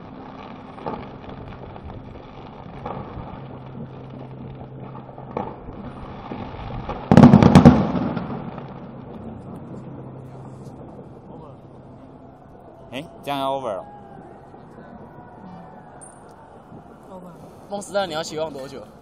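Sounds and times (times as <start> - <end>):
distant fireworks pops: 0.0 - 11.5, 14.6 - 17.7
fireworks bangs and crackling: 0.0 - 19.0.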